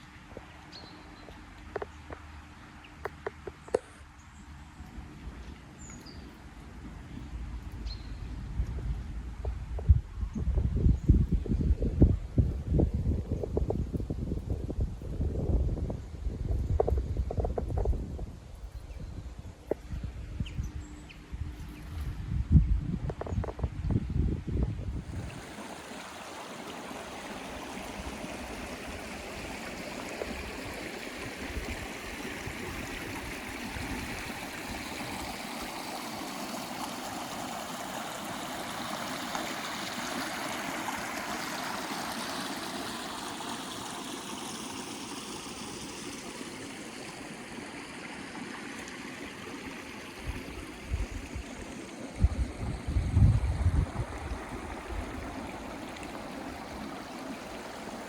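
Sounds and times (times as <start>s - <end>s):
stream flowing and gurgling: 0.0s - 58.0s
wind buffeting microphone: 6.9s - 26.0s, 50.1s - 57.6s.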